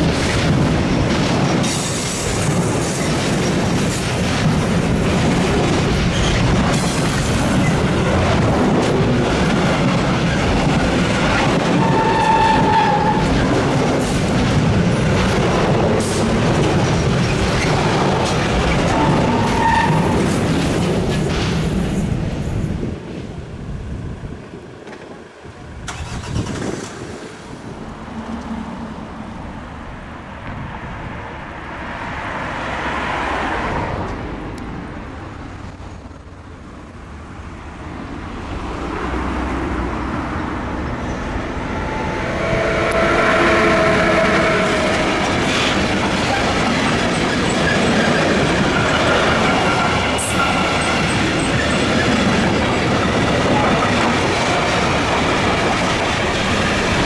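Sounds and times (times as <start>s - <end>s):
electric locomotive passing: 0.0s - 57.0s
wagons rumbling over rails: 0.0s - 57.0s
whining tone: 41.6s - 45.4s.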